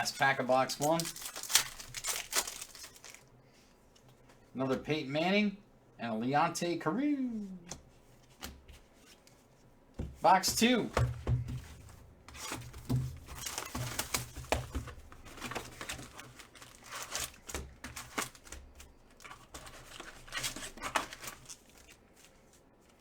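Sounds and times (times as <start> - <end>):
plastic wrapping tearing and crinkling: 0.0 - 3.3, 12.4 - 23.0.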